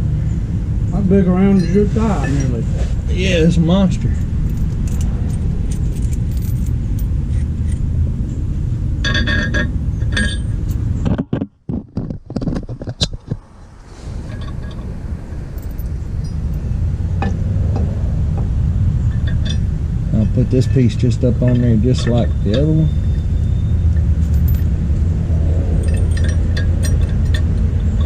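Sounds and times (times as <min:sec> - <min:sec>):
steady low rumble: 0:00.0 - 0:11.2, 0:13.2 - 0:28.0
metal tools clinking: 0:04.1 - 0:07.8, 0:09.1 - 0:10.8, 0:19.1 - 0:23.2, 0:23.9 - 0:24.7, 0:25.8 - 0:28.0.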